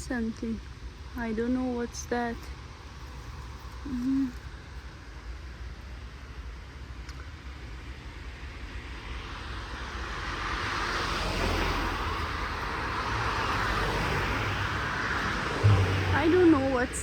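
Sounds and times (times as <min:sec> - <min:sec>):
car passing: 0:08.8 - 0:17.0.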